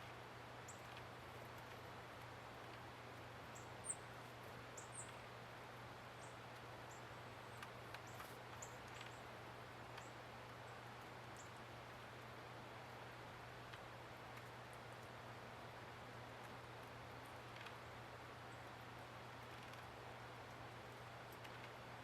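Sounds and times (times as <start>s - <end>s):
songbird chirps: 0.0s - 12.2s
steady low hum and hiss: 0.0s - 22.0s.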